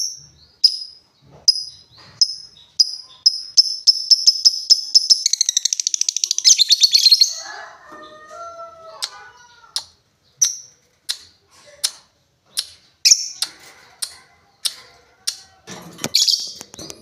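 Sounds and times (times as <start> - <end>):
lovebird high ticking chips: 2.2 - 7.2.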